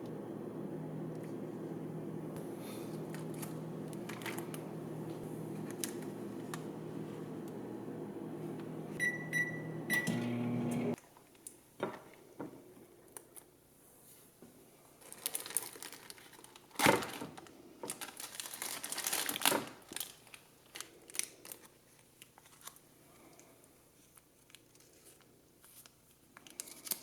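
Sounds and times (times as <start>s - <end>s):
microwave oven humming: 0.0s - 11.0s
crinkling and clattering: 2.8s - 6.8s, 15.0s - 21.7s
microwave timer beeps: 3.2s - 11.0s.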